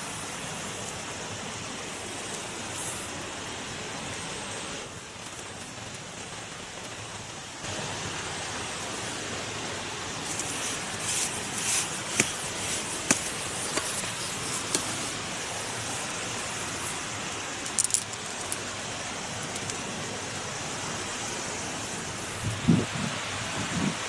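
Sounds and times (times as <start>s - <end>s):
wind noise: 21.9s - 24.0s.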